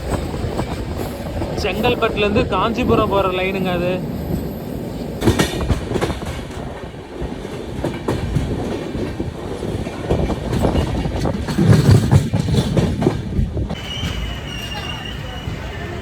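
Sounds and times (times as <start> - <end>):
train wheels clattering over rail joints: 4.9 - 15.0.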